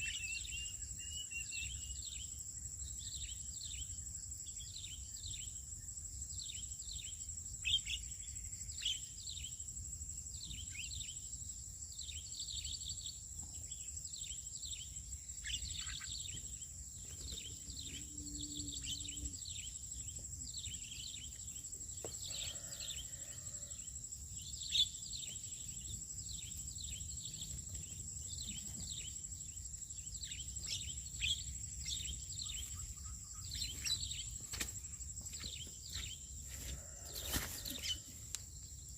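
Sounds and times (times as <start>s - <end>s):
birds chirping: 24.6s - 38.4s.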